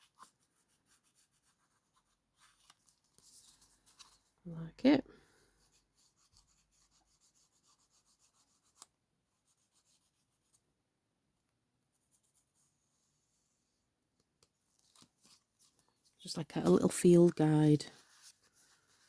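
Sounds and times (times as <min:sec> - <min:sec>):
rubbing and scratching on paper: 0:00.0 - 0:10.8, 0:11.9 - 0:19.0.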